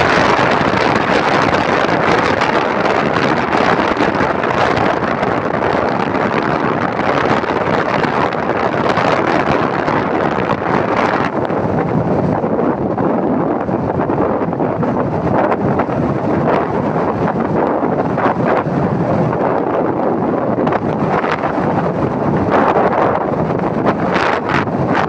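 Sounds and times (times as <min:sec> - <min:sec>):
wind against microphone: 0:00.0 - 0:25.0.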